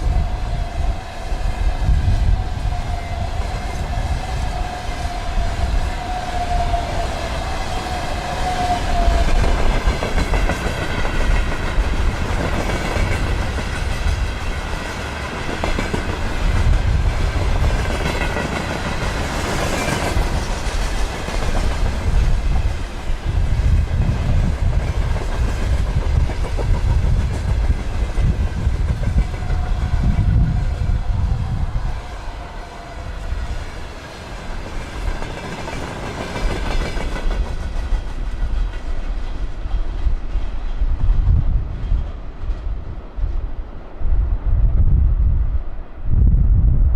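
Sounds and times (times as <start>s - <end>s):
train wheels clattering: 5.8s - 30.7s, 33.4s - 43.4s.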